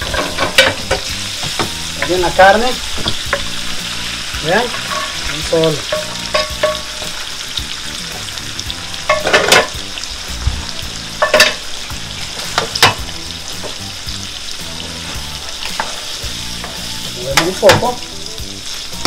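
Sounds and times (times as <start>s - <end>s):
food sizzling in hot oil: 0.0s - 19.0s
wooden spoon scraping wok: 14.8s - 17.0s.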